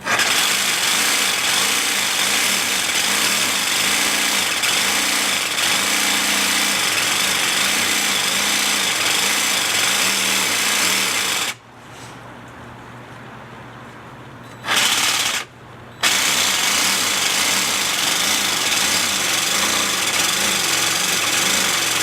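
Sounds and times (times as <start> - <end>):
jigsaw cutting tile: 0.0 - 11.6, 14.6 - 22.0.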